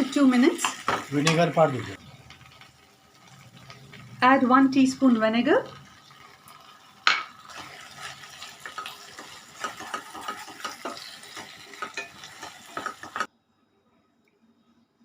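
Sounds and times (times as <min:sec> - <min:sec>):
spatula scraping a frying pan: 0:07.5 - 0:13.3.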